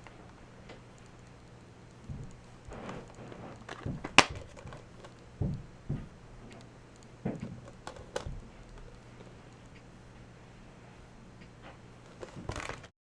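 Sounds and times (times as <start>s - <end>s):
soft knocks: 2.0s - 6.6s
plastic case clicking: 3.6s - 5.2s, 7.4s - 9.3s.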